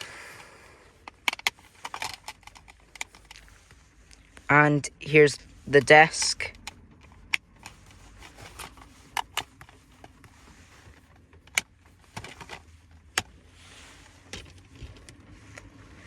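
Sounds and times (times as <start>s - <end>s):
light rustling: 5.4s - 16.0s.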